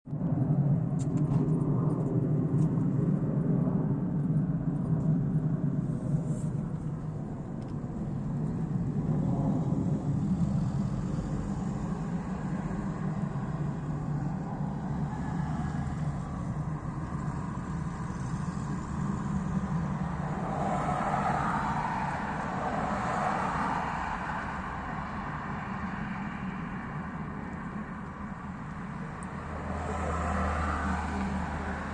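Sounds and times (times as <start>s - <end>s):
road traffic rumble: 0.1s - 31.9s
vehicle passing: 8.2s - 31.9s.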